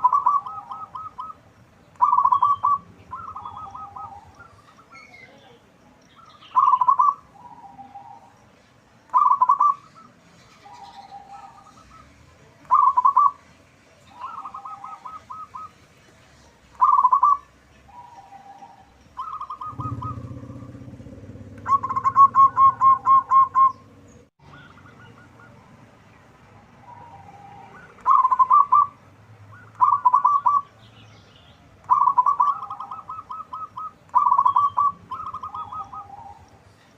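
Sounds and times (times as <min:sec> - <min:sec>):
dove cooing: 0:00.0 - 0:01.4, 0:02.0 - 0:05.1, 0:06.5 - 0:08.3, 0:09.1 - 0:13.4, 0:14.1 - 0:15.8, 0:16.8 - 0:25.7, 0:26.8 - 0:30.7, 0:31.8 - 0:36.6
low hum: 0:19.7 - 0:24.3.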